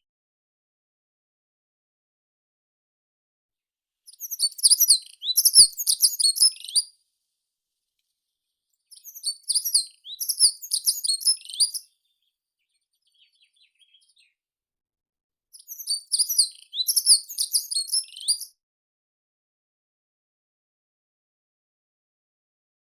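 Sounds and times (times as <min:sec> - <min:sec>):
songbird chirping: 0:04.1 - 0:06.9, 0:08.8 - 0:14.4, 0:15.6 - 0:18.5.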